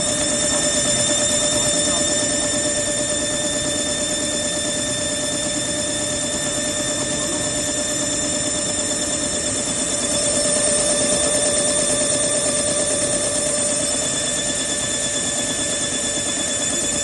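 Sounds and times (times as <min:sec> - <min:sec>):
drilling machine whining: 0:00.0 - 0:17.0.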